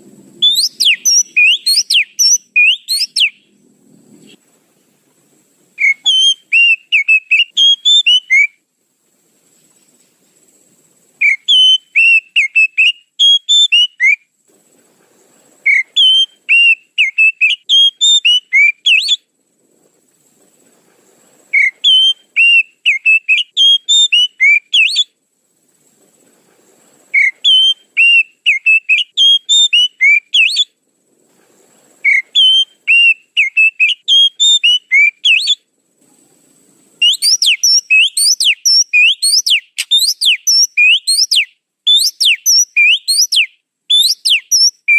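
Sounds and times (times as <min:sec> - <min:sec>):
bird whistling sharp notes: 0:00.4 - 0:03.4, 0:05.8 - 0:08.6, 0:11.2 - 0:14.2, 0:15.7 - 0:19.2, 0:21.5 - 0:25.1, 0:27.2 - 0:30.7, 0:32.0 - 0:35.6, 0:37.0 - 0:44.9.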